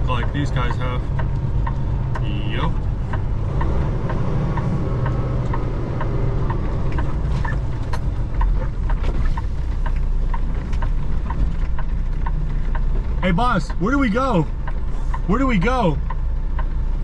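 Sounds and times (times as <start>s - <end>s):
truck diesel engine running: 0.0s - 17.0s
turn signal ticking: 0.0s - 17.0s.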